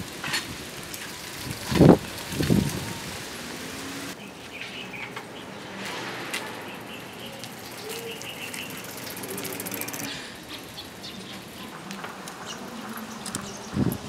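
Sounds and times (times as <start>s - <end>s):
outdoor hiss: 0.0s - 4.9s
birds chirping: 4.1s - 14.0s.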